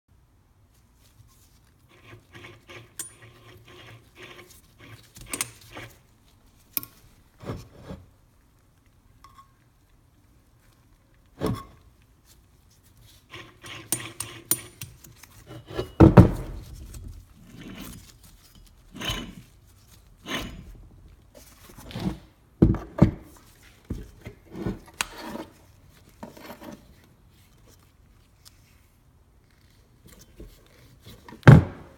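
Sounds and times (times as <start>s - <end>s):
gritty rasping bearing rattle: 1.9s - 6.0s, 13.3s - 15.1s.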